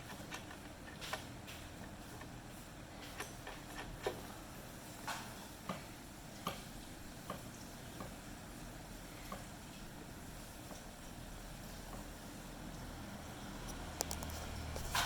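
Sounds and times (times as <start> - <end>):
light clicks and taps: 13.6 - 15.0.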